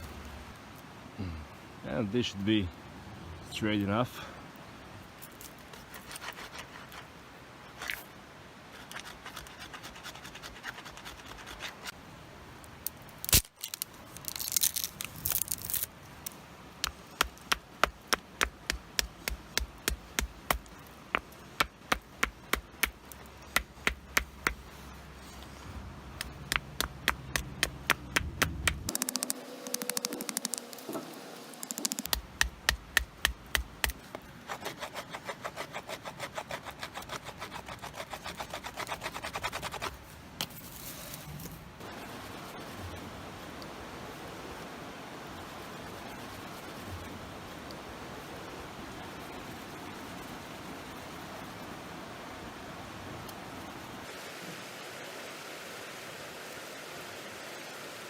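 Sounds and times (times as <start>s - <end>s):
stone scraping a wooden stick: 5.7s - 7.1s, 33.5s - 41.2s.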